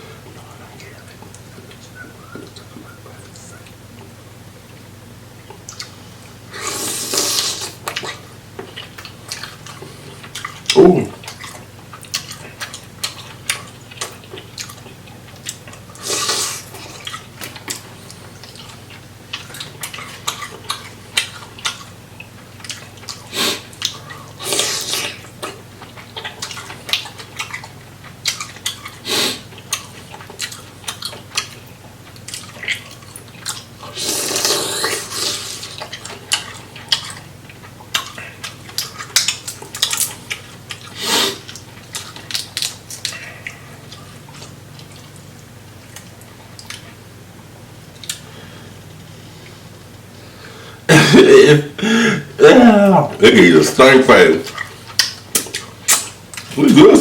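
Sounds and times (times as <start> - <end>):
wet chewing and slurping: 3.6 - 47.0, 54.4 - 56.6.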